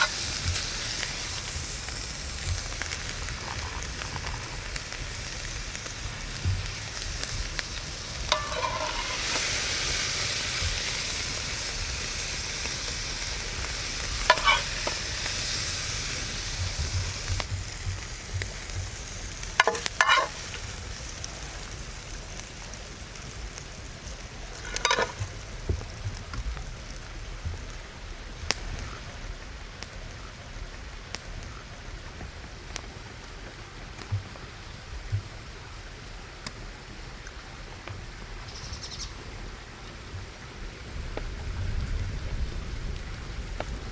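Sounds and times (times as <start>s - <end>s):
food sizzling in a pan: 0.0s - 32.1s
utensil scraping a pan: 8.2s - 10.1s, 14.2s - 15.1s, 19.5s - 20.7s, 24.5s - 25.4s.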